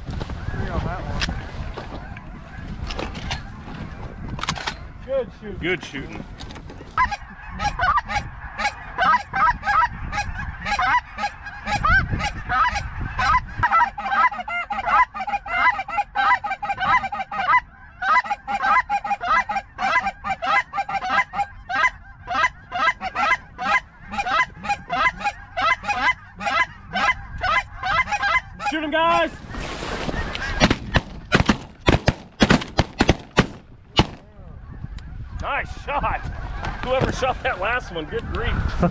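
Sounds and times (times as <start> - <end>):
geese honking: 7.0 - 35.2.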